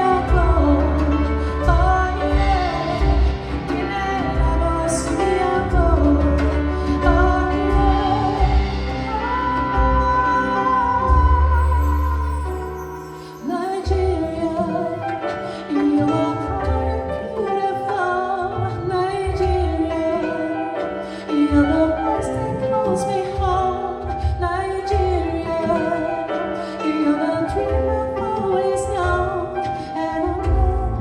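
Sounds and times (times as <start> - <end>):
pulsing low bass: 0.0 - 12.4
instrumental accompaniment: 0.0 - 31.0
woman singing soul ballad: 0.0 - 31.0.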